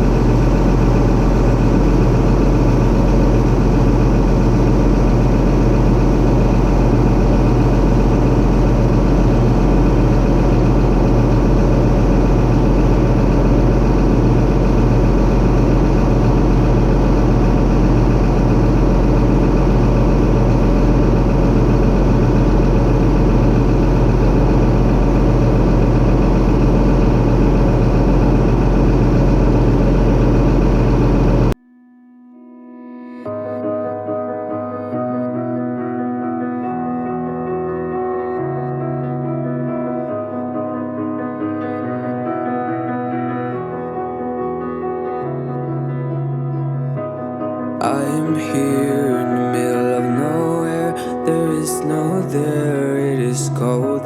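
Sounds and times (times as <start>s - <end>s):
heavy machinery engine humming: 0.0s - 31.6s.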